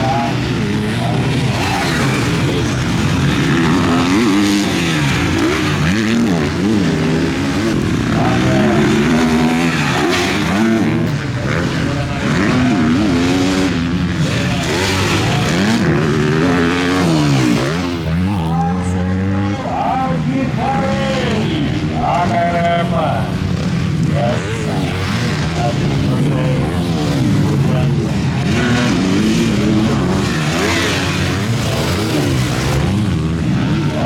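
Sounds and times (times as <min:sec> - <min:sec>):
motocross bikes revving: 0:00.0 - 0:34.0.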